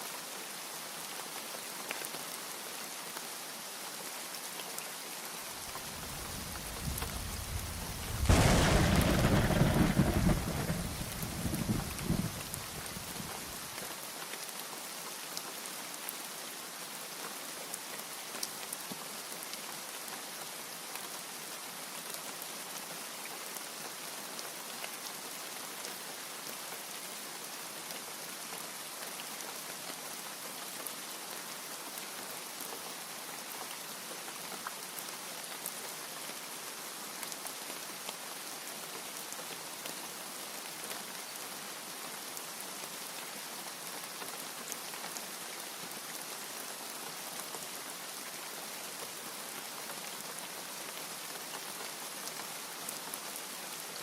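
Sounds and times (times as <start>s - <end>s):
rain falling: 0.0s - 54.0s
low thunder rumble: 6.0s - 13.2s.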